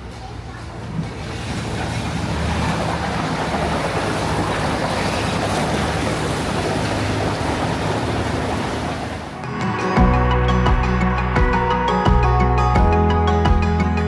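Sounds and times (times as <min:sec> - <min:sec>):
wind and water rushing: 0:00.6 - 0:09.5.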